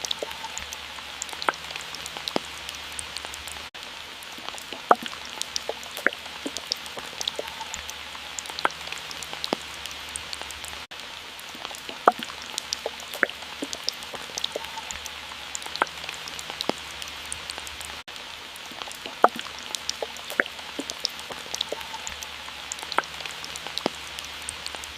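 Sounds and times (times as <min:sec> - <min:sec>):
water drops plinking: 0:00.0 - 0:02.4, 0:04.8 - 0:08.9, 0:11.9 - 0:15.0, 0:19.1 - 0:22.2
hiss of falling water: 0:00.0 - 0:24.9.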